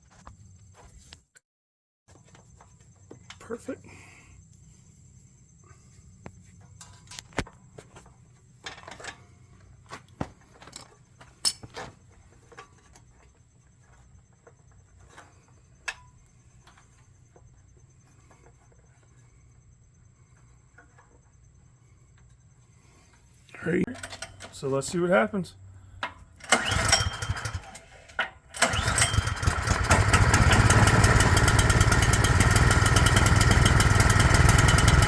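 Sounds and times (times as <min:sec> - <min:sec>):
hand tools and metal parts clattering: 0:02.1 - 0:04.0, 0:05.7 - 0:35.0.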